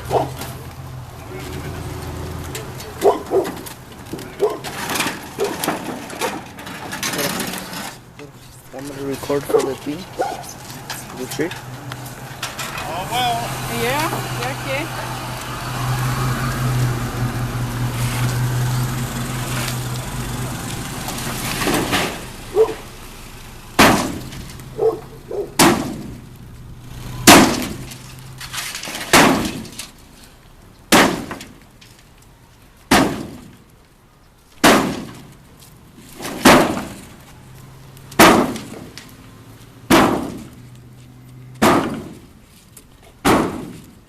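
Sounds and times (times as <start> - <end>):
sharp crashing impacts: 15.6 - 30.0, 30.9 - 31.6, 34.6 - 35.4, 36.1 - 37.2, 38.1 - 39.0, 39.8 - 40.6, 41.6 - 42.3, 43.2 - 43.9.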